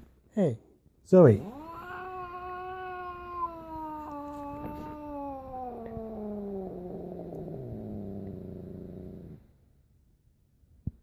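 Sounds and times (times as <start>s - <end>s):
cat yowling: 1.4s - 9.4s.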